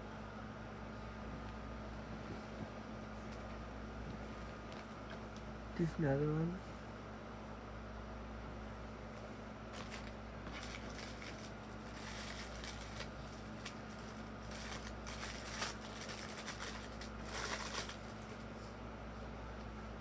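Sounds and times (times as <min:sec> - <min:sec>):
steady low hum: 0:00.0 - 0:20.0
toy packaging crinkling and tearing: 0:09.8 - 0:18.5.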